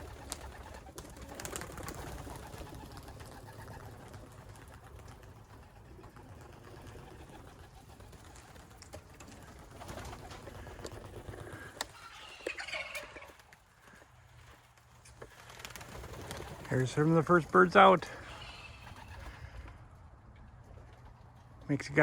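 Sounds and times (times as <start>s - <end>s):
pigeons cooing: 0.0s - 21.6s.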